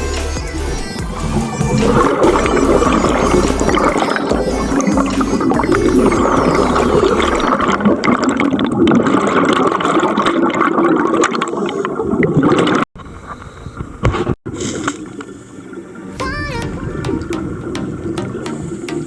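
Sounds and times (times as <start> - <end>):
underwater bubbling: 0.0 - 14.1.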